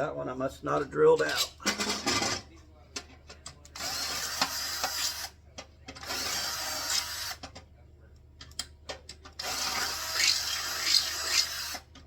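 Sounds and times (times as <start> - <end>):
pneumatic air hammer: 3.8 - 5.3, 6.0 - 7.4, 9.4 - 11.9.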